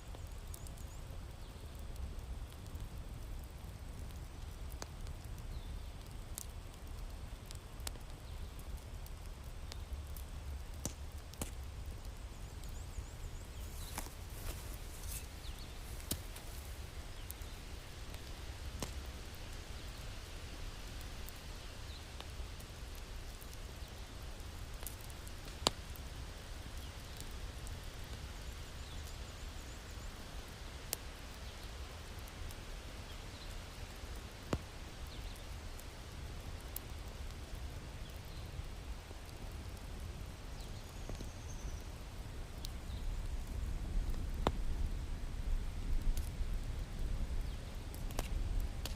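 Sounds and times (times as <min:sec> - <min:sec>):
low fire rumble: 0:00.0 - 0:48.9
wood fire crackling and popping: 0:00.0 - 0:48.9.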